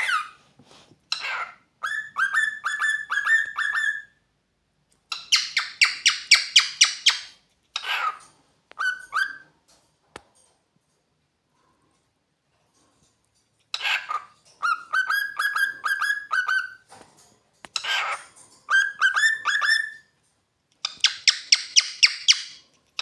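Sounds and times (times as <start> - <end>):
cockatiel harsh chirps: 1.1 - 4.2, 5.1 - 8.2, 8.8 - 9.4, 13.8 - 16.8, 17.8 - 20.0, 20.9 - 23.0.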